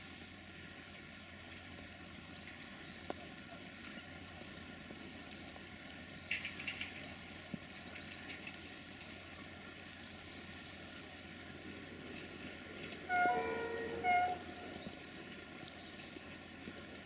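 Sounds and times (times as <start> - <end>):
birds chirping: 13.1 - 15.1.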